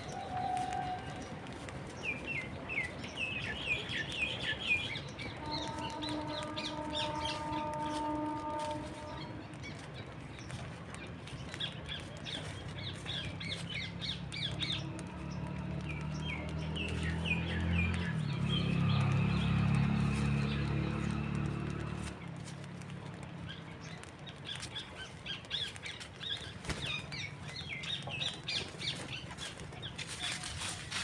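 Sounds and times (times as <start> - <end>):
low rumble: 0.0 - 24.5
small birds chirping: 0.0 - 31.0.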